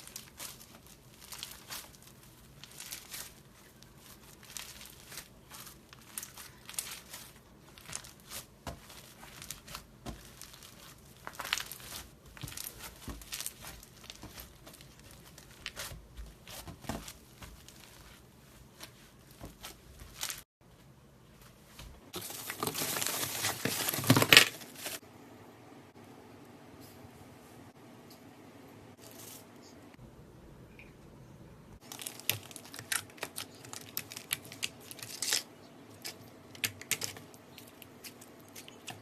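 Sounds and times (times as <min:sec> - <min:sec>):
slime crackling and popping: 0:00.0 - 0:16.0.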